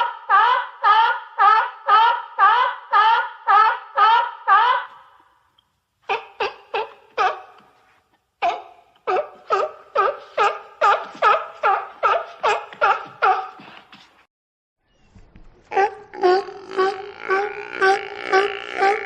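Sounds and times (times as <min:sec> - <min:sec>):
sea lion barking: 0:06.1 - 0:07.8, 0:08.4 - 0:13.8, 0:15.7 - 0:19.0.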